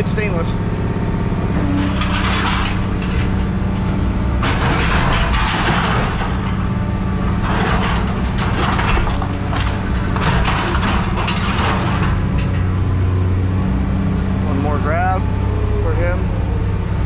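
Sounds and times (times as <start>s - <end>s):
scrap metal clanking and scraping: 0.5s - 13.0s.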